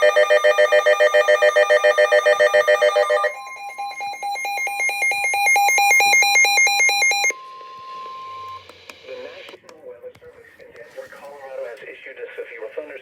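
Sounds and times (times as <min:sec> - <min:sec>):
pulsing alarm beeps: 0:00.0 - 0:09.5.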